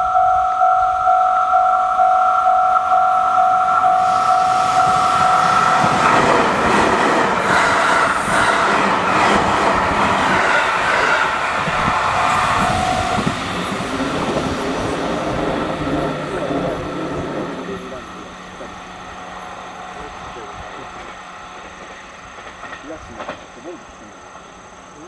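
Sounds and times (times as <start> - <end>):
level-crossing alarm two-tone ding: 0.0 - 7.0
electric train passing: 0.0 - 25.0.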